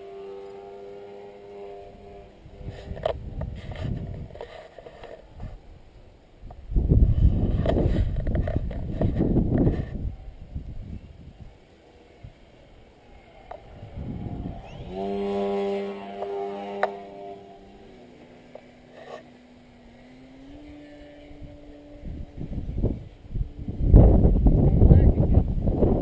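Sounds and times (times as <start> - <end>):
model plane motor buzzing: 0.0 - 5.7, 11.5 - 26.0
wind rumbling on microphone: 1.0 - 26.0.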